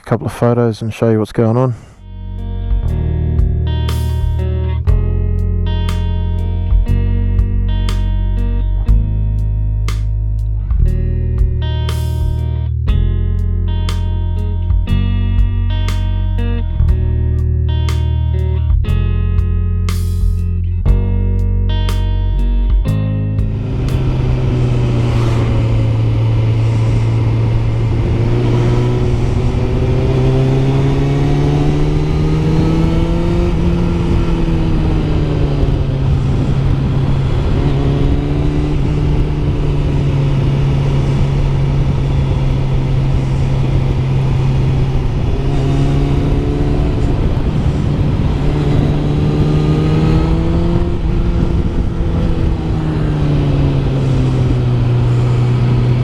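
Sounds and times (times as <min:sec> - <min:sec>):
motorcycle engine riding: 0:02.4 - 0:56.0
heavy wind noise: 0:18.7 - 0:56.0.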